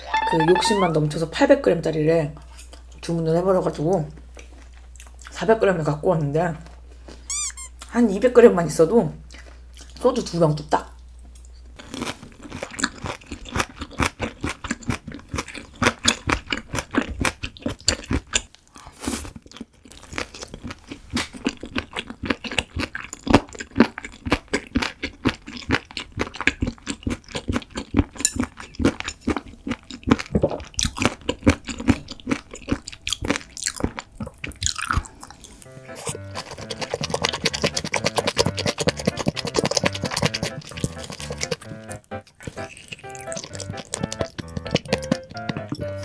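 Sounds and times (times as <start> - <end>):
crunchy chewing: 11.4 - 46.0.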